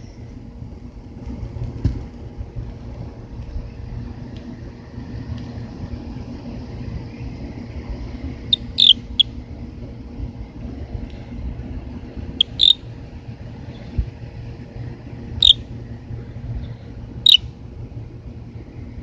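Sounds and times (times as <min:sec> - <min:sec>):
steady low rumble: 0:00.0 - 0:19.0
high-pitched squeaky chirps: 0:08.5 - 0:09.0, 0:12.4 - 0:12.8.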